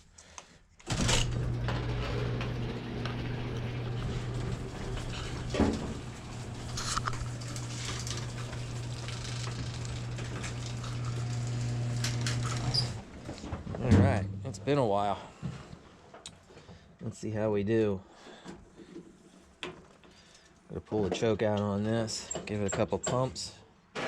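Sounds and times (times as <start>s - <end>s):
garage door motor hum: 0.8s - 14.4s
door rattling on track: 0.9s - 13.2s
door clanks: 0.9s - 14.5s.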